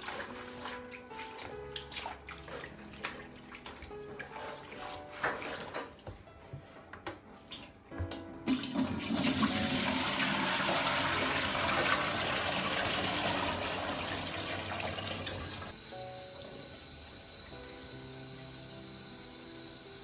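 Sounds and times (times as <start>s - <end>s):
tap water running into sink: 0.0s - 6.2s, 7.4s - 15.8s.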